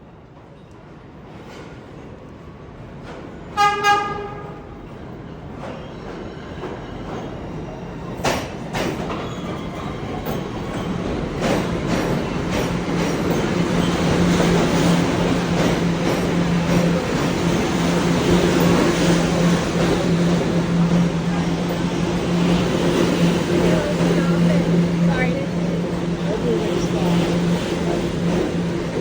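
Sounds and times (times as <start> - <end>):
train running noise: 0.1 - 29.0
rail clicks: 2.9 - 29.0
train horn toots: 3.6 - 4.7.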